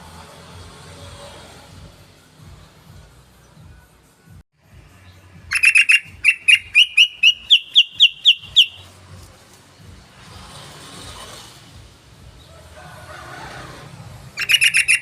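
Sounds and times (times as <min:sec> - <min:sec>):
bird singing: 0:05.0 - 0:08.9, 0:14.4 - 0:15.0.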